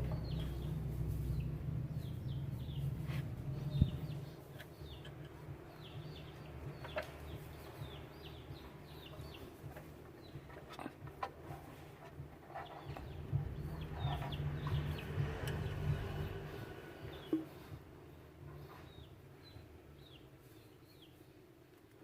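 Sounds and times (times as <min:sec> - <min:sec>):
low rumble: 0:00.0 - 0:07.0, 0:12.9 - 0:18.6
chickens chirping: 0:00.0 - 0:21.6.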